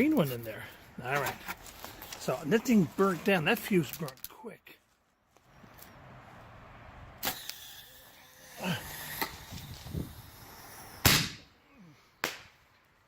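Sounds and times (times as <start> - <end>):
firework bangs: 11.0 - 11.5.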